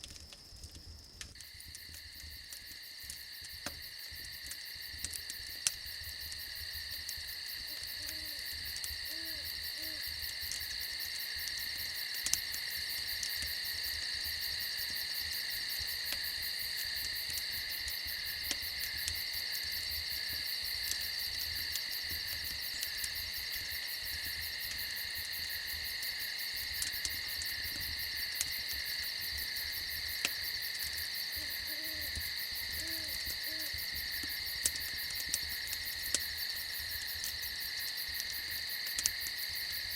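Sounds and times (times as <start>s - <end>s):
campfire crackling: 0.0s - 39.9s
crickets chirping: 0.0s - 39.9s
owl hooting: 9.1s - 10.0s, 31.4s - 32.1s, 32.8s - 33.7s.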